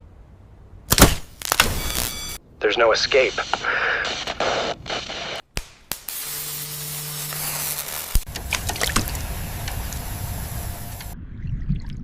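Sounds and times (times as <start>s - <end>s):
crackles: 0.9s - 11.2s
radio static hiss: 1.4s - 5.5s, 6.1s - 11.2s
low hum: 6.1s - 12.0s.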